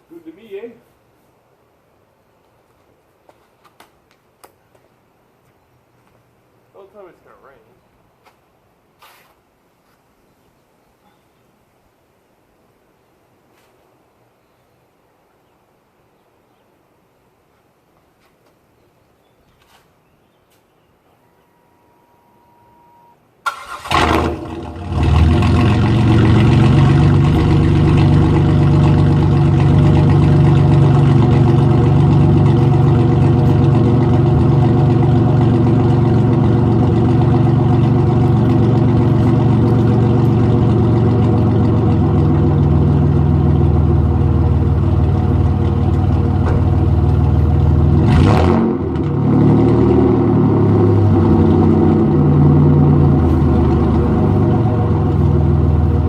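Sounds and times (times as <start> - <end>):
car engine cranking and starting: 23.4 - 56.0
loud car engine idling: 23.8 - 48.3, 52.0 - 56.0.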